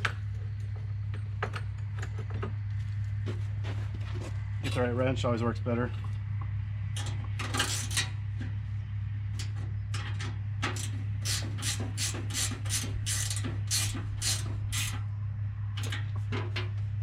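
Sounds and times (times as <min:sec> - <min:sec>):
low hum: 0:00.0 - 0:17.0
ratchet wrench clicking: 0:10.8 - 0:15.0.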